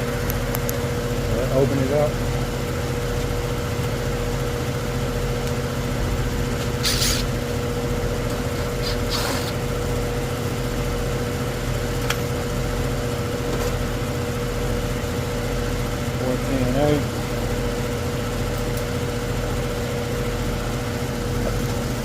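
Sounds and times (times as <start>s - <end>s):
condenser fan motor humming: 0.0s - 22.0s
brief scraping noises: 6.8s - 7.3s, 8.5s - 9.6s.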